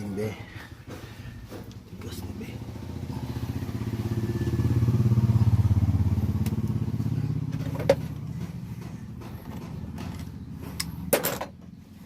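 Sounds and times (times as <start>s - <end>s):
vehicle engine passing by: 2.0s - 11.1s.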